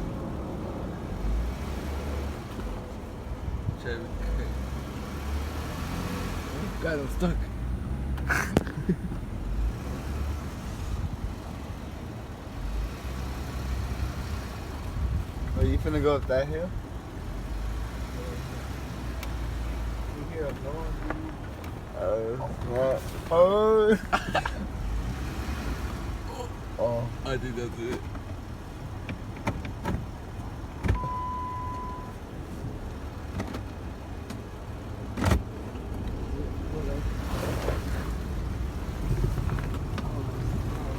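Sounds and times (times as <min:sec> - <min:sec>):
tires on rough ground: 0:00.0 - 0:40.9
truck engine rumbling: 0:00.0 - 0:40.9
knocks and clunk: 0:27.9 - 0:31.2, 0:32.6 - 0:34.5, 0:35.1 - 0:36.2
steady beep: 0:31.0 - 0:32.1.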